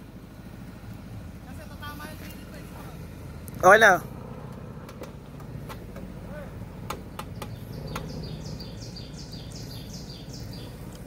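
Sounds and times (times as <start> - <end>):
vehicle engine humming: 0.0 - 11.0
bird chirping: 7.0 - 11.0.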